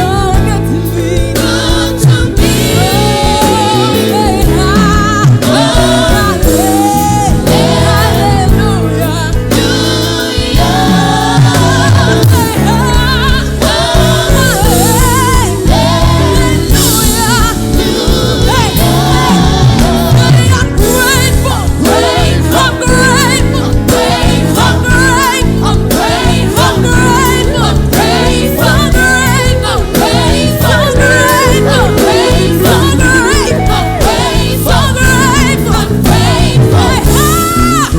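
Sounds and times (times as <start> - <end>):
gospel singing with accompaniment: 0.0 - 37.9.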